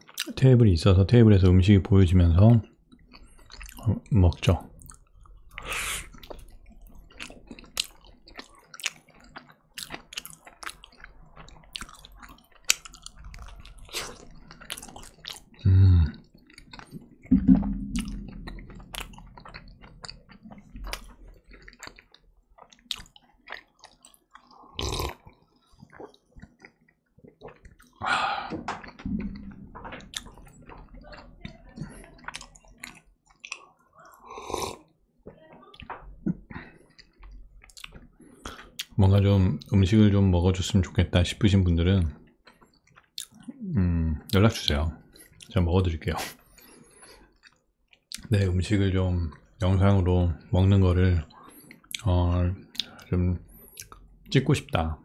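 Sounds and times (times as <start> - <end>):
pizza chewing: 2.6 - 55.0
gulps of drink: 15.4 - 20.0, 34.0 - 34.9
loud low thumps: 17.3 - 19.4.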